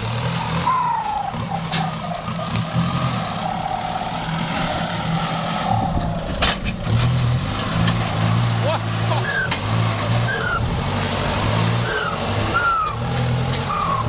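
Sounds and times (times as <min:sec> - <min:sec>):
diesel tractor engine under load: 0:00.0 - 0:14.0.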